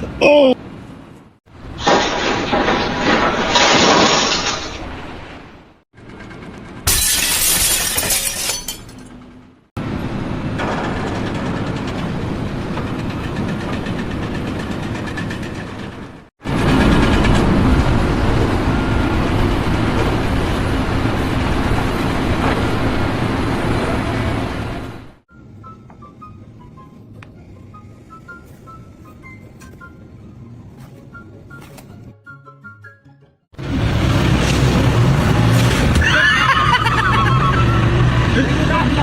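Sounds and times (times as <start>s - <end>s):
loud crash with shattering: 1.8s - 5.4s, 6.9s - 9.1s, 34.3s - 37.5s.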